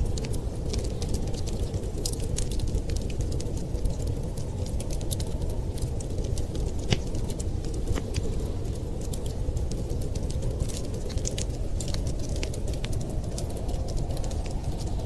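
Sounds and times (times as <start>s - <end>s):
fire popping and snapping: 0.0s - 15.0s
wood fire crackling: 0.0s - 15.0s.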